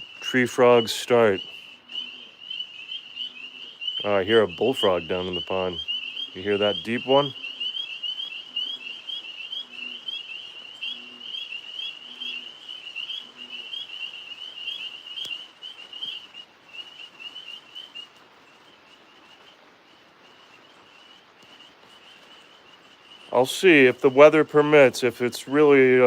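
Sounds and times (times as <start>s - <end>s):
bullfrog calling: 0.0s - 18.2s
tree frogs chirping: 0.0s - 26.0s.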